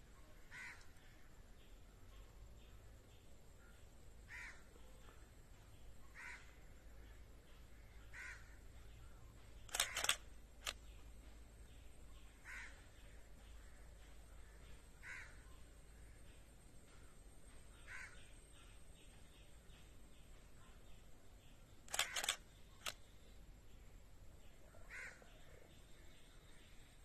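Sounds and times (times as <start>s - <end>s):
sharp clicks: 9.7s - 10.9s, 21.9s - 23.0s
bird harsh calls: 17.8s - 18.3s.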